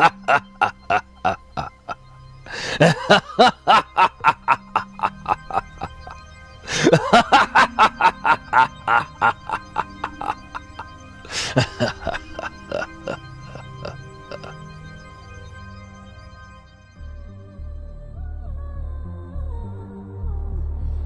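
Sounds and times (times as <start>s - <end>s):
cartoon voice maniacal laughter: 0.0s - 14.5s
background music: 0.0s - 21.0s.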